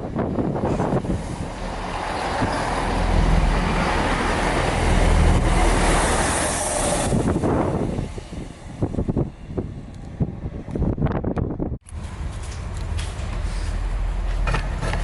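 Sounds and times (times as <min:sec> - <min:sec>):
train passing at speed: 0:00.0 - 0:11.3.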